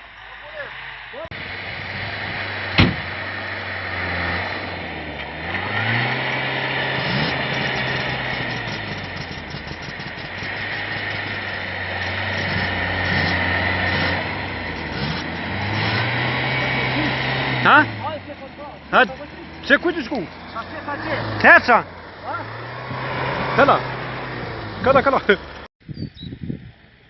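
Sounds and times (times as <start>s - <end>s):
sharp knock: 2.8s - 3.1s
dirt bike engine running: 5.5s - 25.6s.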